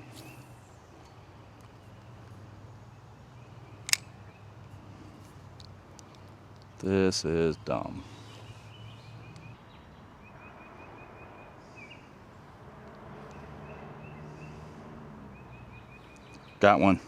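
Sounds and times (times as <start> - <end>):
faint outdoor background noise: 0.0 - 17.0
bird chirping: 7.9 - 12.2, 13.2 - 17.0.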